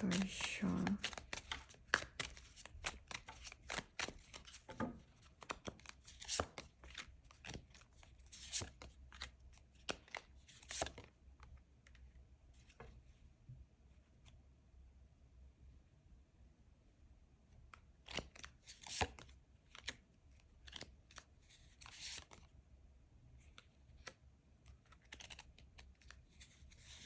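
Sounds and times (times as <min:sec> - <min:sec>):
cards being shuffled: 0:00.0 - 0:11.1, 0:18.0 - 0:20.0, 0:20.6 - 0:22.4, 0:24.0 - 0:27.0.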